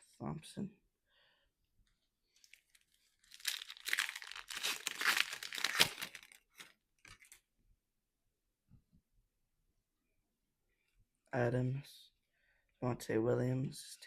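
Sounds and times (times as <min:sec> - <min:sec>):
foil wrapper crinkling: 0:02.4 - 0:07.4
foil pack tearing open: 0:03.2 - 0:07.3.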